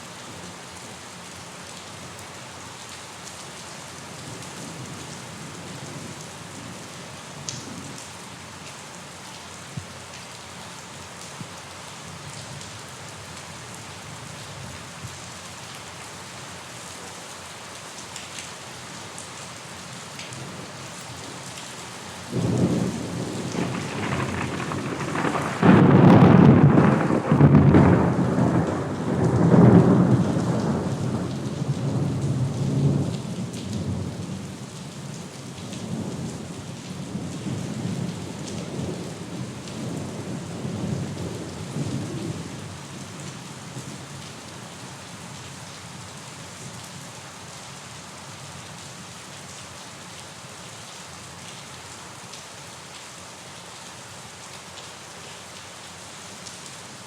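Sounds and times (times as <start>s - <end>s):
steady rain: 0.0s - 57.0s
thunder rumbling: 22.4s - 32.2s.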